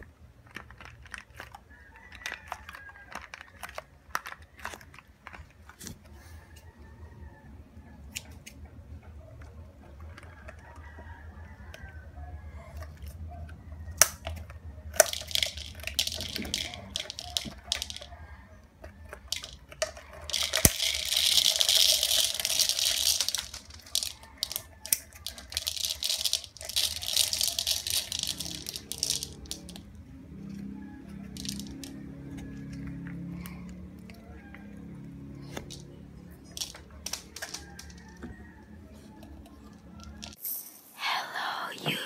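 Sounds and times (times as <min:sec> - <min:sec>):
shell crinkling and crunching: 0:00.0 - 0:06.6, 0:13.9 - 0:33.3, 0:35.6 - 0:40.4.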